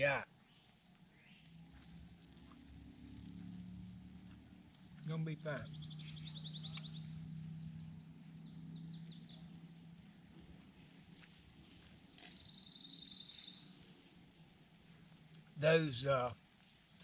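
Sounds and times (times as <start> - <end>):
songbirds chirping: 0.0 - 17.0
bird trill: 5.1 - 13.9.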